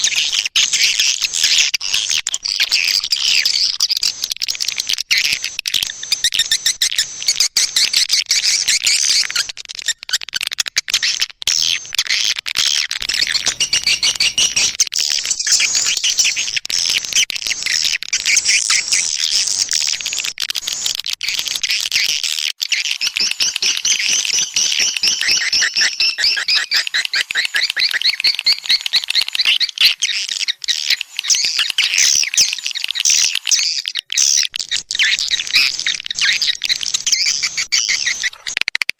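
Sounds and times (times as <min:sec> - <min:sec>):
high twittering bird chirps: 0:12.7 - 0:16.5, 0:22.7 - 0:38.7.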